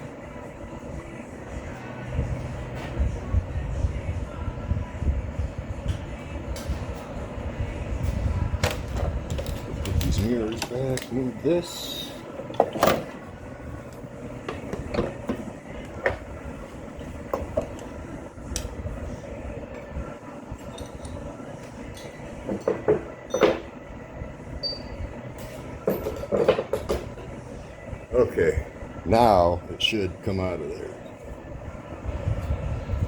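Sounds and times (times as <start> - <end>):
steady low rumble: 0.0 - 12.5, 13.2 - 22.5, 27.1 - 33.0.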